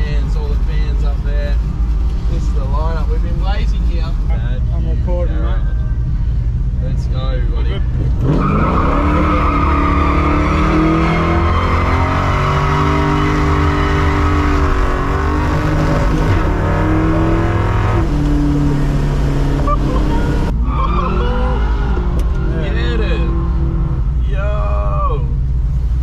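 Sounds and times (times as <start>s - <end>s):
car engine revving hard: 7.9s - 20.5s.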